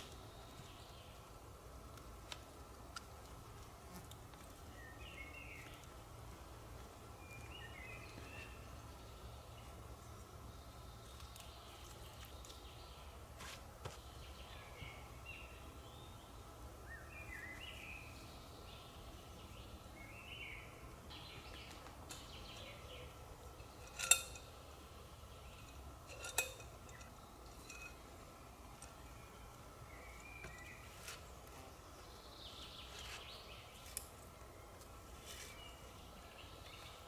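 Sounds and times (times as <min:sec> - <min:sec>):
sharp ringing clinks: 0:23.7 - 0:24.5.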